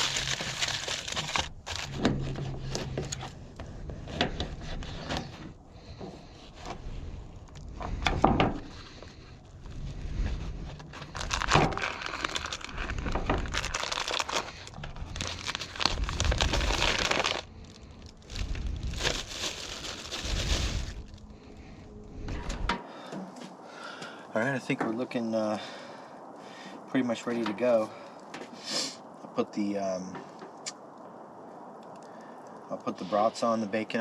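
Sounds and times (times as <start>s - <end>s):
crinkly packaging crumpled and torn: 0.0s - 3.2s, 10.7s - 21.3s.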